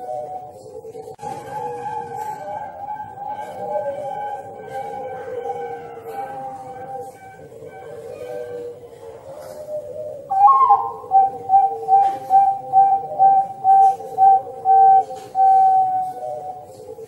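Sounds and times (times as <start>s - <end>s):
low held tone: 10.2s - 16.9s
repeated whistle-like tone: 10.3s - 16.7s.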